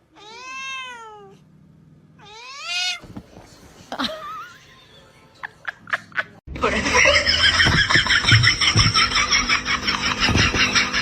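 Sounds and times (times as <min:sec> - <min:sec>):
cat meowing: 0:00.1 - 0:01.4, 0:02.2 - 0:03.0.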